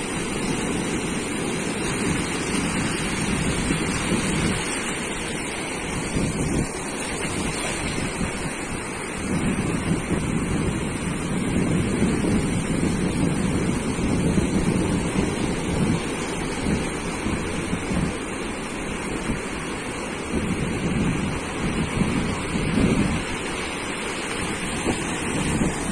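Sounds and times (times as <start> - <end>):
waves breaking on beach: 0.0 - 25.9
wind rumbling on microphone: 0.0 - 25.9.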